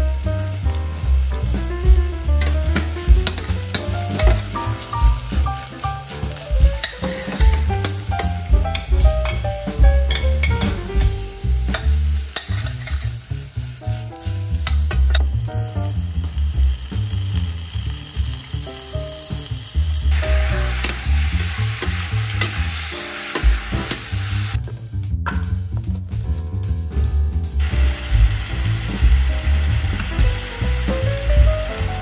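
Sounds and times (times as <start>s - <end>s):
chicken frying hiss: 0.0s - 24.6s, 27.5s - 32.0s
food sizzling in hot oil: 0.1s - 24.6s, 27.6s - 32.0s
spatula scraping and tapping pot: 11.7s - 13.1s.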